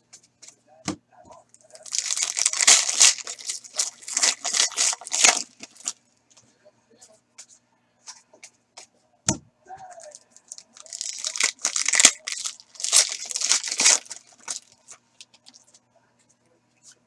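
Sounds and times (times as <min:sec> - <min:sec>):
foil wrapper tearing and crinkling: 0:01.8 - 0:06.0, 0:10.0 - 0:14.9.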